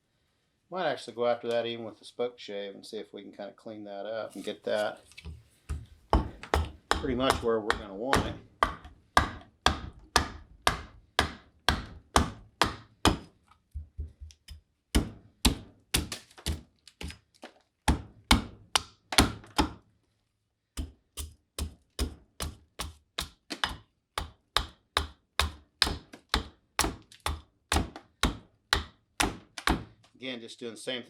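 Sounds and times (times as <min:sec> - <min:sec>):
hand tool chopping wood: 0:05.7 - 0:13.4, 0:14.0 - 0:17.2, 0:17.9 - 0:19.8, 0:20.8 - 0:30.0.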